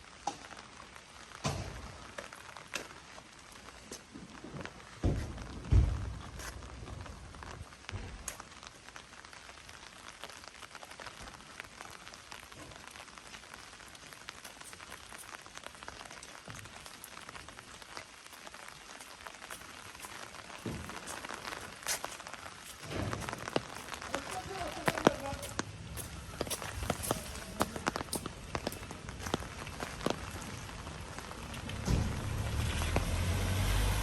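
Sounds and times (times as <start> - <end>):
steady rain falling: 0.0 - 34.0
soft footsteps: 18.3 - 31.4.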